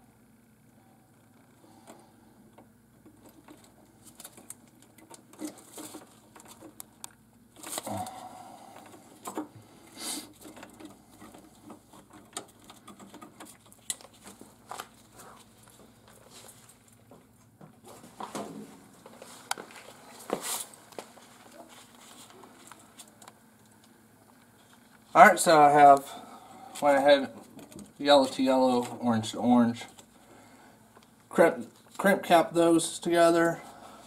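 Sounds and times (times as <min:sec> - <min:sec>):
small clicks and ticks of handling parts: 0:10.4 - 0:15.0, 0:22.6 - 0:25.0.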